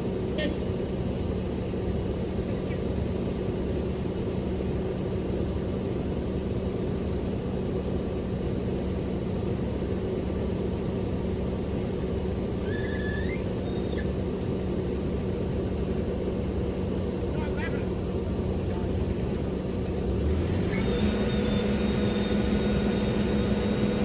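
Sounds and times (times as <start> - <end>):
truck engine and road drone: 0.0 - 24.0
high rising squeak: 12.6 - 14.1.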